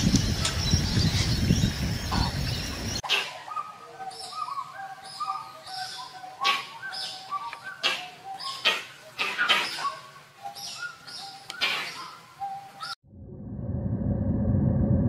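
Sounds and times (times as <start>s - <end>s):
birds calling: 0.0s - 13.0s
low rumbling noise: 13.0s - 15.0s.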